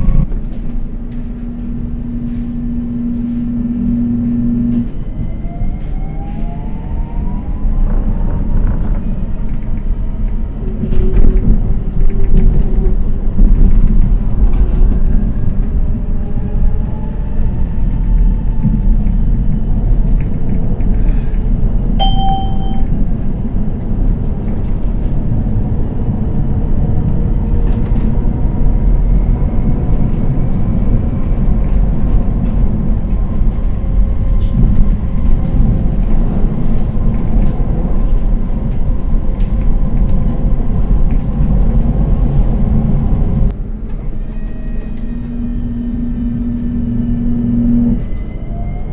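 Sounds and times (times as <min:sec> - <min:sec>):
electric tram running on rails: 0:00.0 - 0:48.9
tram motor whine: 0:00.0 - 0:48.9
short tone: 0:22.0 - 0:23.0.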